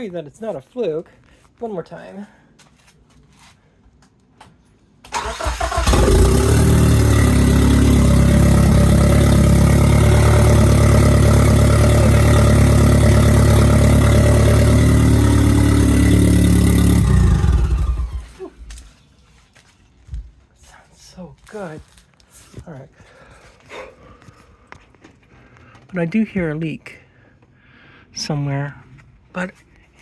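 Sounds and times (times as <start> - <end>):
car engine cranking and idling: 5.1 - 18.4.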